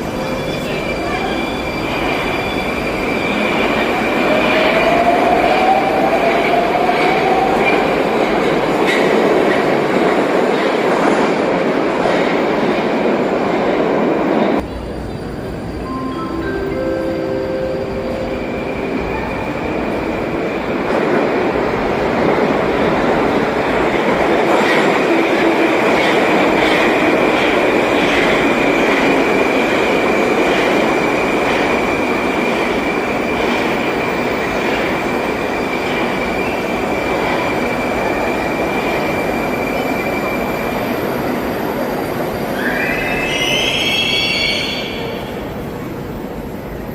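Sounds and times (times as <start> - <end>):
high wheel squeal: 0.2 - 3.7.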